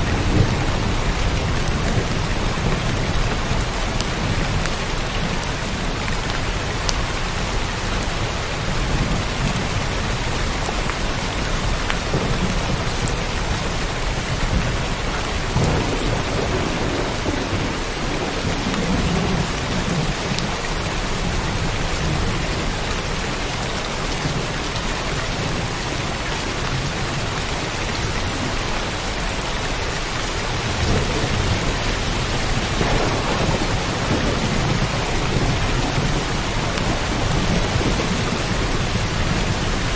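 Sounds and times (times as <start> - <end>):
thunder rolling: 0.0 - 5.8, 11.4 - 22.7, 30.4 - 39.9
rain pouring: 0.0 - 39.9.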